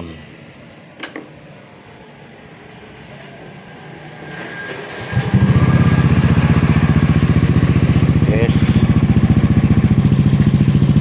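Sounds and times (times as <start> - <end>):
scooter exhaust pulsing: 5.1 - 11.0.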